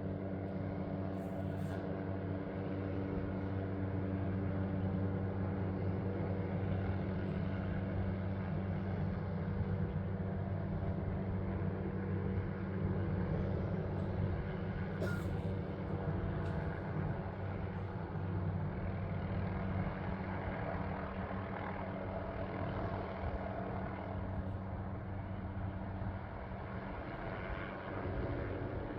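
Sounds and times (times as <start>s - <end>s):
helicopter drone: 0.0s - 28.9s.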